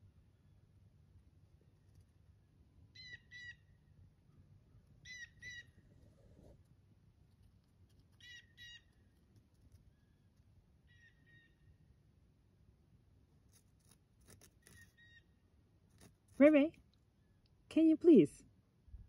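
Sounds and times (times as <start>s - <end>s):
faint short bird calls: 10.8s - 11.8s, 14.6s - 15.4s.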